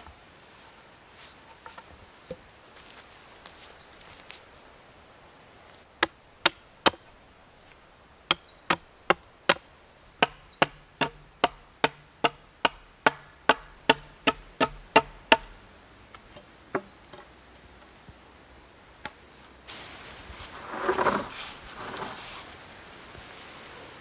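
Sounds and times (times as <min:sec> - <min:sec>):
rustling: 0:02.7 - 0:04.9, 0:19.7 - 0:24.0
wood chopping: 0:06.0 - 0:07.1, 0:07.7 - 0:15.6.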